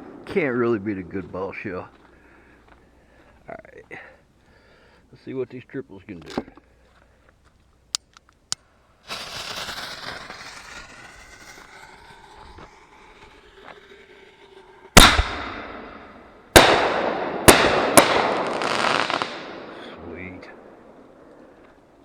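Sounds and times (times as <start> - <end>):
firework shell hiss: 9.0 - 16.5
firework shells bursting with echo: 9.0 - 22.0.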